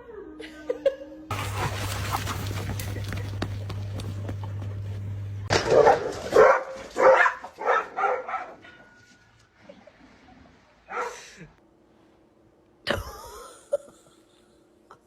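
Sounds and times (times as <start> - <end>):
steady low hum: 1.3 - 5.5
dog barking: 5.6 - 8.8, 10.9 - 11.2.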